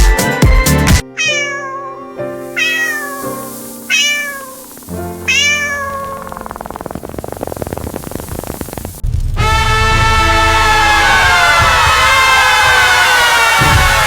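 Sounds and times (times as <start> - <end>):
cat meowing: 1.1 - 6.7.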